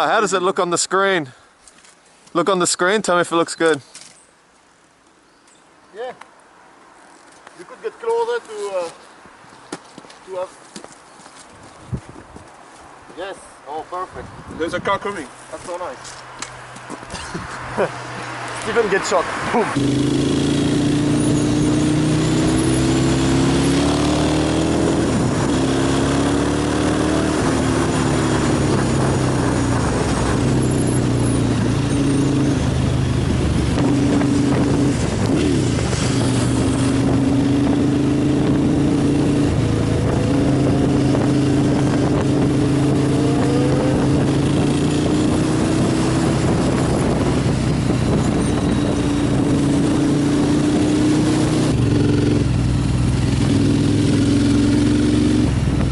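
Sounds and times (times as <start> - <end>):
motorcycle engine running: 19.8 - 55.9.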